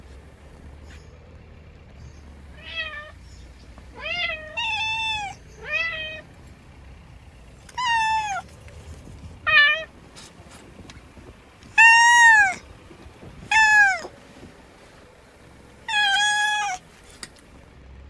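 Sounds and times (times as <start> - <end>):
cat meowing: 2.6 - 3.2, 3.9 - 6.3, 7.7 - 8.5, 9.4 - 10.0, 11.7 - 12.7, 13.4 - 14.2, 15.8 - 16.9.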